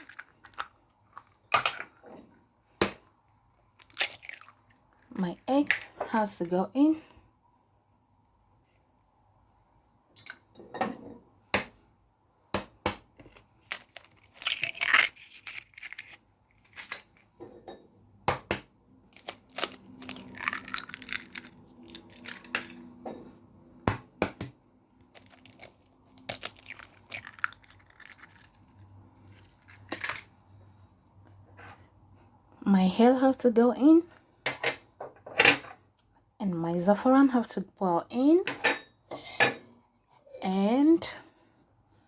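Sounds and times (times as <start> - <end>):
eggs cracking: 0.0 - 2.0, 2.8 - 6.5, 12.6 - 17.4, 18.2 - 22.8, 23.8 - 30.4.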